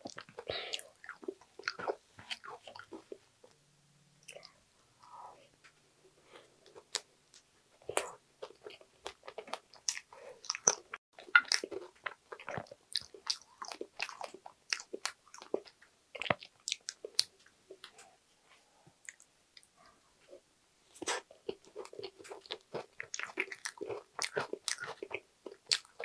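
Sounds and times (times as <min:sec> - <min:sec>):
close chewing mouth sounds: 0:00.0 - 0:03.2, 0:06.6 - 0:18.0, 0:21.0 - 0:26.0.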